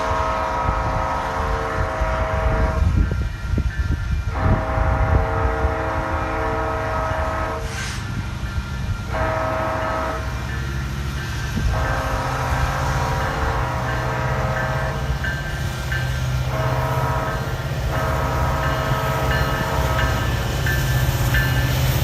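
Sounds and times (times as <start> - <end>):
locomotive air horn blasts: 0.0 - 3.0, 4.3 - 8.2, 9.1 - 10.4, 11.6 - 15.1, 16.4 - 20.4.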